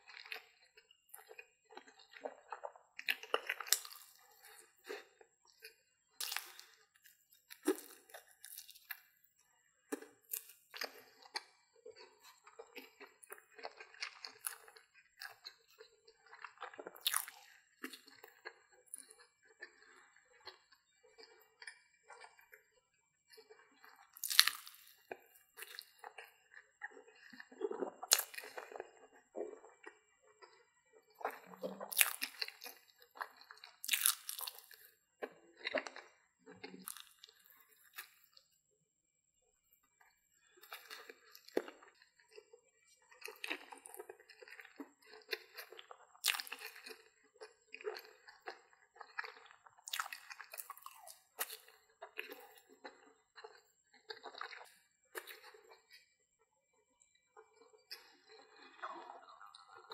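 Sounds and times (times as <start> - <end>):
crisp bite crunch: 0.0 - 9.1, 9.9 - 20.6, 23.4 - 26.3, 27.8 - 28.9, 31.2 - 38.4, 43.1 - 55.9
wet chewing: 0.0 - 38.6, 39.7 - 56.2, 57.1 - 59.9.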